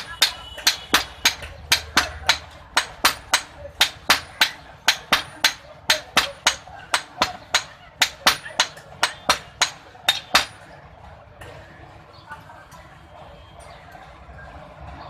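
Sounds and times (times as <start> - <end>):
hammer striking metal on anvil: 0.0 - 10.7.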